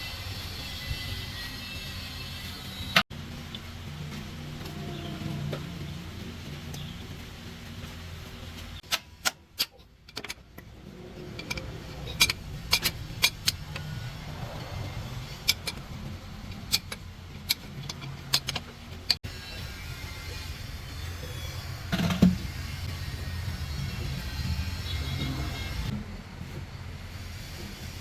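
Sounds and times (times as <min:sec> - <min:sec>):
metal parts clinking: 0:09.6 - 0:14.0, 0:15.3 - 0:19.2.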